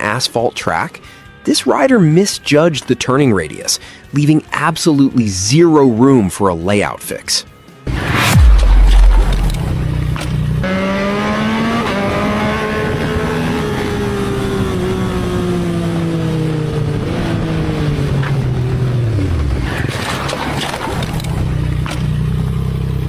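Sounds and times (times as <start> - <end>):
motorcycle engine running: 21.1 - 23.0.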